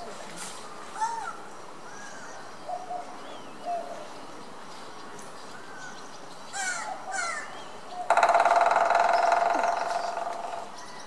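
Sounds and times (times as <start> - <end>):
background hiss: 0.0 - 11.0
harsh bird calls: 5.0 - 11.0.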